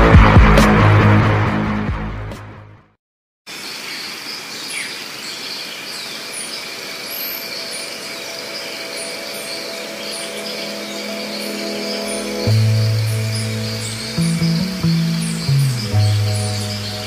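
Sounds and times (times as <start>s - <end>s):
music: 0.0s - 3.0s, 7.7s - 17.0s
high bird chirps: 3.9s - 17.0s.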